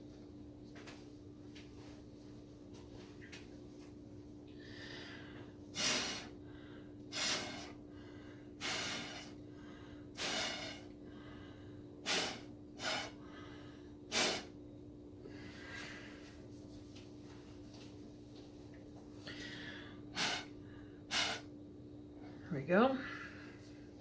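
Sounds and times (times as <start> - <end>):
breath blown through a straw: 5.7 - 6.4, 7.1 - 7.8, 8.6 - 9.4, 10.2 - 10.9, 12.0 - 13.2, 14.1 - 14.5, 20.1 - 20.5, 21.1 - 21.5.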